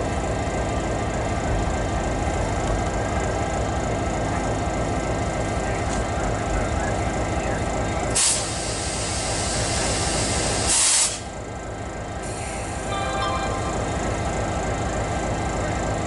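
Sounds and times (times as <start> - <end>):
diesel locomotive idling: 0.0 - 16.0
air brake hiss: 8.2 - 11.3, 12.2 - 12.9.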